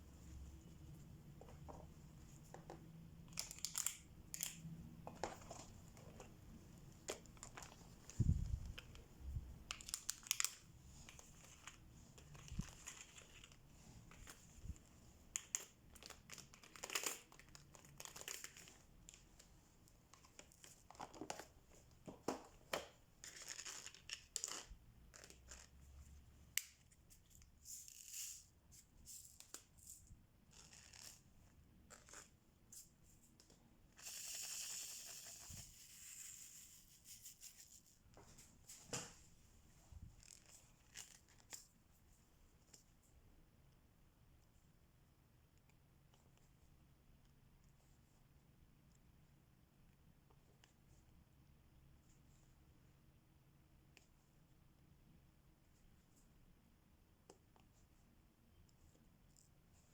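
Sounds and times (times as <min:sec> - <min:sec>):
plastic crinkling: 0:09.7 - 0:14.8, 0:15.4 - 0:19.3.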